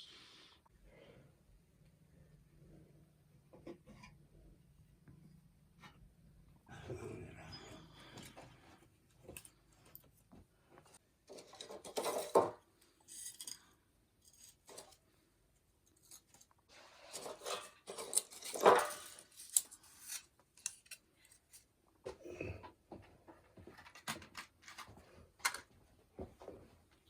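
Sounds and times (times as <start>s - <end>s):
handling scrapes and clicks: 11.3s - 15.1s, 15.8s - 21.7s.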